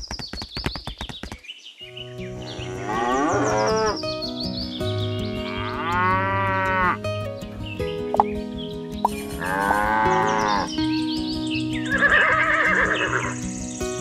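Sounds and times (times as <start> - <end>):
cattle mooing: 2.5 - 4.0, 5.5 - 7.0, 9.4 - 10.7.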